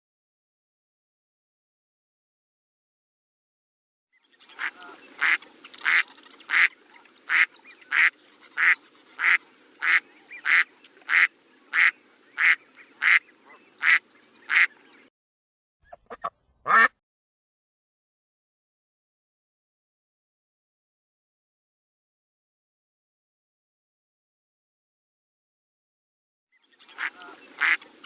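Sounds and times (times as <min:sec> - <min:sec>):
faint background hiss: 0:04.2 - 0:15.1, 0:26.7 - 0:28.0
duck quacking: 0:04.6 - 0:14.7, 0:15.9 - 0:16.9, 0:27.0 - 0:27.8.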